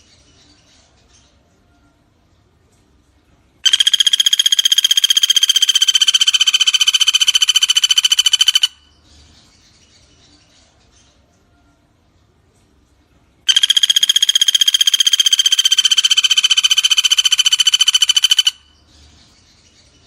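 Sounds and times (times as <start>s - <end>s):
woodpecker rattling call: 3.6s - 9.0s, 13.5s - 18.8s.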